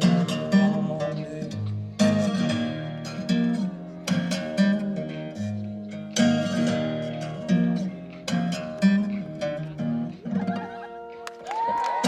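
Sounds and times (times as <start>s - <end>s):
acoustic guitar strumming chords: 0.0s - 11.2s.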